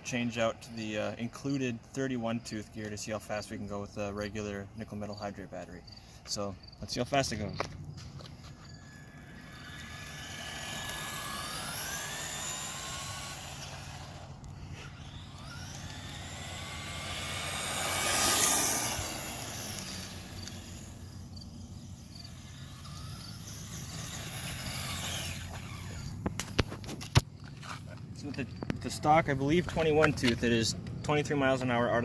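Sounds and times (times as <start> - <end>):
electric motor and gears whining: 6.3 - 31.9.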